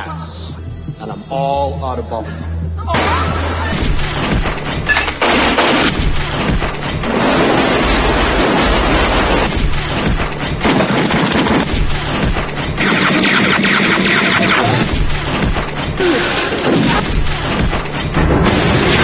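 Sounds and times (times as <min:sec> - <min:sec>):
film music score: 0:00.0 - 0:07.2
crashing impacts: 0:03.0 - 0:12.8, 0:14.9 - 0:19.0
rapid gunfire: 0:03.9 - 0:19.0.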